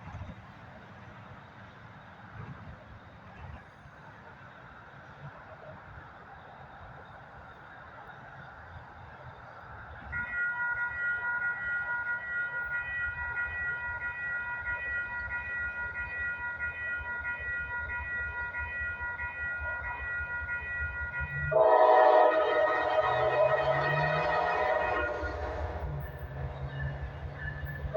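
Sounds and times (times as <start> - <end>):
train rumbling: 0.0 - 27.9
crossing warning bell ringing: 10.0 - 27.9
locomotive air horn: 20.1 - 27.9.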